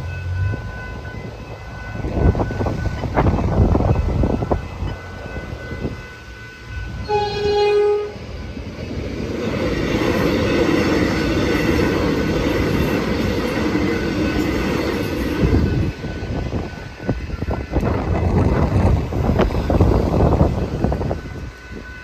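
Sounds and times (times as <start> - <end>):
train wheels rumbling on rail: 0.0 - 22.0
train horn blast: 7.0 - 8.3.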